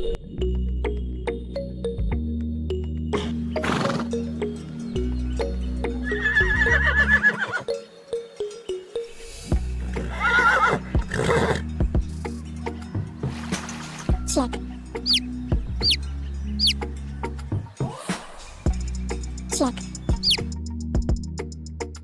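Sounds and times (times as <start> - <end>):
background music: 0.0 - 22.0
horse whinnying: 3.6 - 4.1, 6.1 - 7.7, 10.0 - 11.7.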